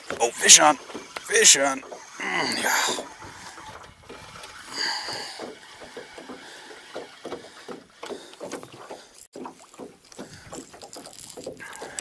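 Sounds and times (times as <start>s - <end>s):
fish splashing: 0.0s - 12.0s
water sounds: 0.0s - 12.0s.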